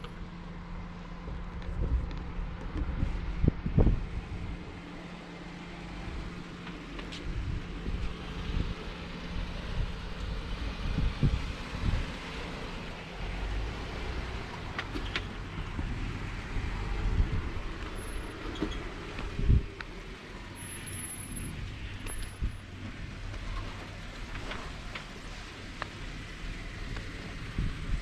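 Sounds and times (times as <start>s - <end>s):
vehicle engine hum: 0.0s - 28.0s
wind noise on microphone: 1.2s - 4.8s, 7.2s - 12.5s, 15.6s - 20.0s, 21.5s - 23.8s, 26.7s - 28.0s.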